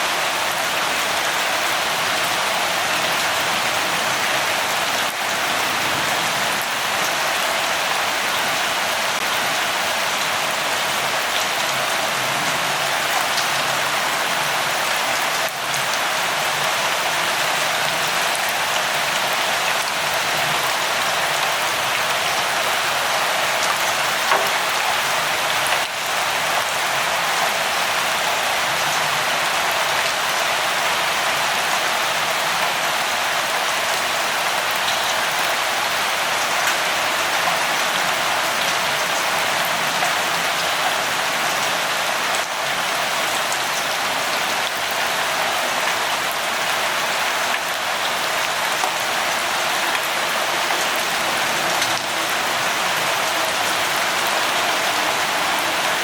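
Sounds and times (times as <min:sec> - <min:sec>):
steady light rain: 0:00.0 - 0:56.0
raindrops tapping a surface: 0:23.7 - 0:25.9.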